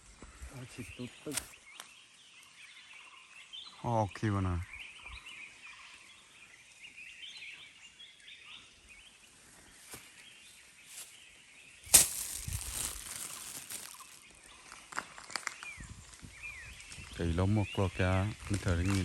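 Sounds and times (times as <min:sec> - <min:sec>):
small birds chirping: 0:00.0 - 0:19.0
rustling: 0:11.9 - 0:15.5.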